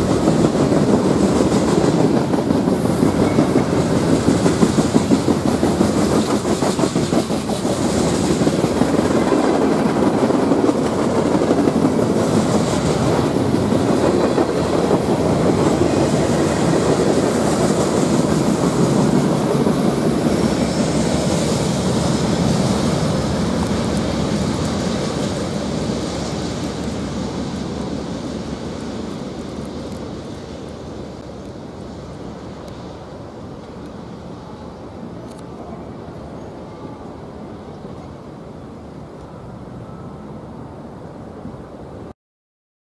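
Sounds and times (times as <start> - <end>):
wheels clattering on rails: 0.0 - 32.9
freight train rolling past: 0.0 - 42.1.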